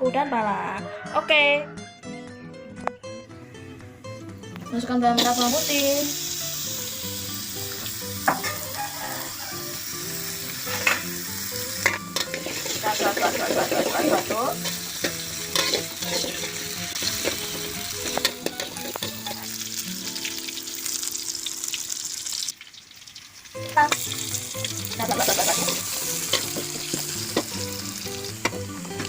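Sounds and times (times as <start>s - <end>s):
background music: 0.0s - 22.0s, 23.6s - 29.0s
shallots sizzling in hot oil: 5.2s - 29.0s
spatula scraping pan: 11.8s - 19.5s, 25.0s - 27.5s.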